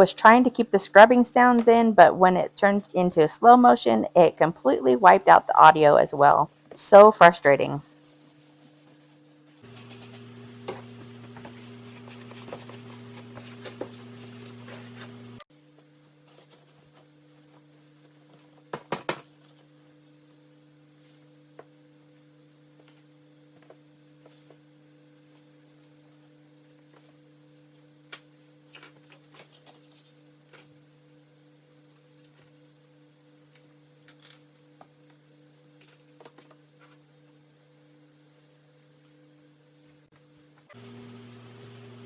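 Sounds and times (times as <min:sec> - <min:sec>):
low electrical hum: 0:09.6 - 0:15.4, 0:40.7 - 0:42.0.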